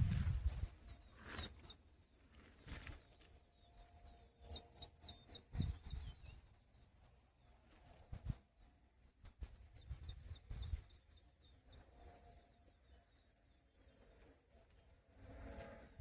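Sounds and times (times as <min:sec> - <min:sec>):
bird chirping: 0:02.7 - 0:07.3, 0:09.4 - 0:14.1.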